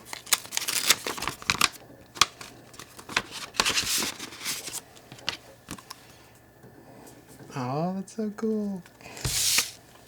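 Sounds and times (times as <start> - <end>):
paper rustling and crinkling: 0.0 - 6.0, 9.1 - 9.8.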